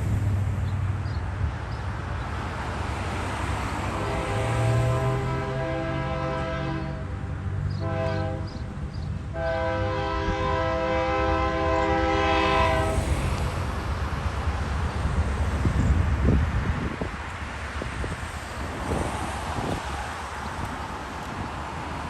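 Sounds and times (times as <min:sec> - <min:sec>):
train engine and rail rumble: 0:00.0 - 0:22.0
locomotive air horn blasts: 0:03.9 - 0:13.0.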